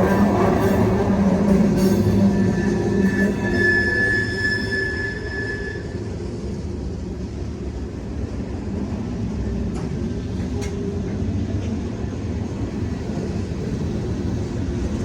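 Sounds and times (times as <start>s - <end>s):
high wheel squeal: 0.0s - 6.2s
freight train rumbling on track: 0.0s - 15.0s.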